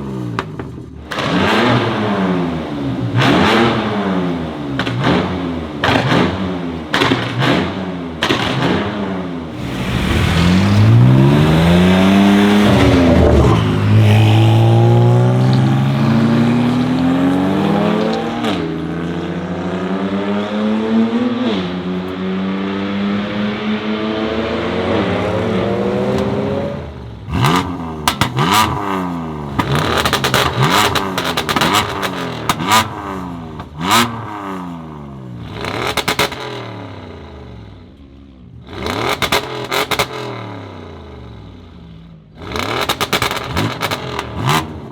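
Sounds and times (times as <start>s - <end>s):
exhaust pops and crackles: 0.3s - 1.8s, 4.8s - 11.2s, 27.3s - 34.2s, 38.7s - 40.3s, 42.4s - 44.9s
car engine accelerating hard: 1.1s - 37.5s.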